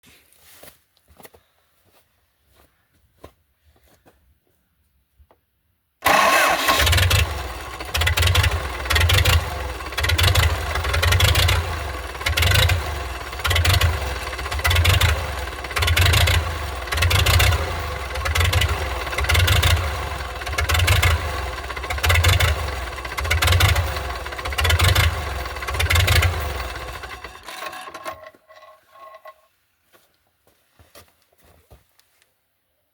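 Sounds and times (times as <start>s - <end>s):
tractor diesel engine running: 6.0s - 29.3s.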